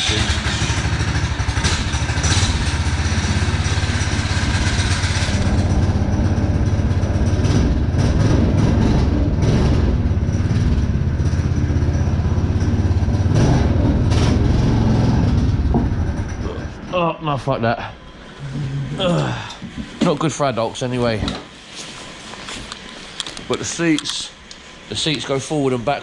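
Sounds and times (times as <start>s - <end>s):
small petrol engine idling: 0.0s - 16.6s.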